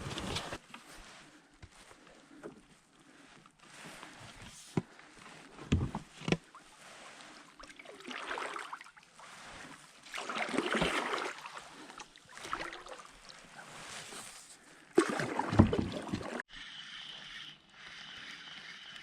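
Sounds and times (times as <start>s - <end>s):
paddle swishing through water: 0.0s - 16.5s
paddle knocking against hull: 15.0s - 16.4s.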